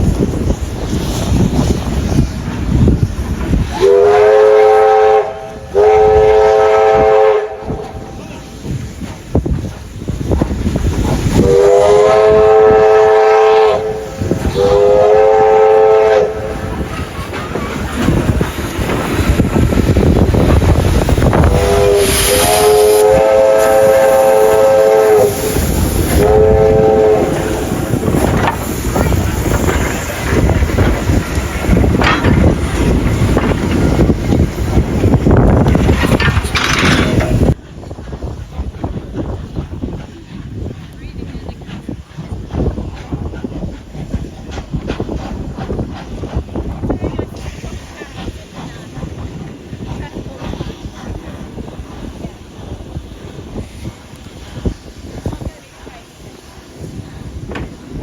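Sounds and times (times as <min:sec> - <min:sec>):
wind noise on microphone: 0:00.0 - 0:58.0
locomotive horn blasts: 0:03.8 - 0:08.1, 0:11.4 - 0:16.7, 0:21.4 - 0:25.5, 0:26.2 - 0:27.7.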